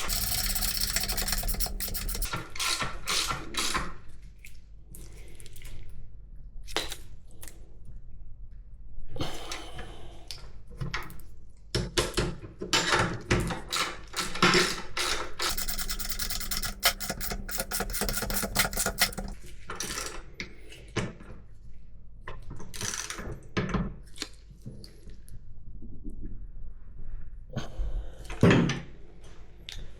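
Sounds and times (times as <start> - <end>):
metal parts and tools knocking: 0.0 - 2.3, 15.4 - 19.4
rapid even clicking: 0.0 - 2.3, 15.4 - 19.4.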